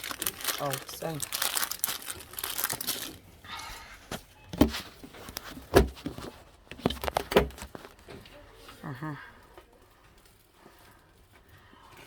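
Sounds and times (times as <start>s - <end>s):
dull knocks and thumps: 4.5s - 7.8s.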